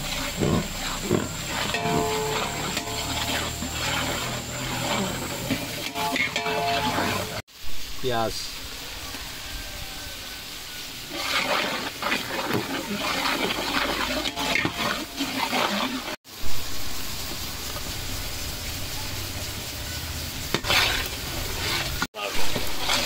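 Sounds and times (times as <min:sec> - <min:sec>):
metal skimmer stirring: 0:00.0 - 0:07.4, 0:11.0 - 0:16.2, 0:20.6 - 0:23.0
onion paste sizzling in oil: 0:00.0 - 0:23.0.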